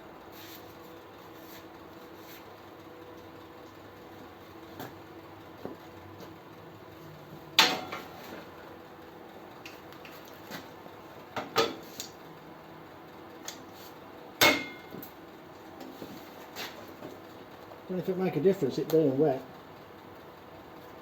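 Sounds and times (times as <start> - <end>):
metallic clanks with ringing: 14.4 - 15.0.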